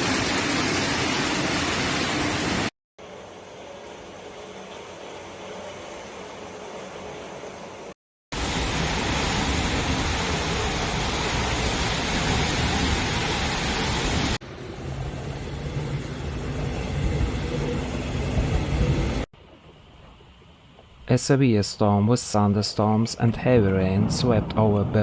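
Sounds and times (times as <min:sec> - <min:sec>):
heavy rain: 0:00.0 - 0:02.7, 0:08.3 - 0:19.3.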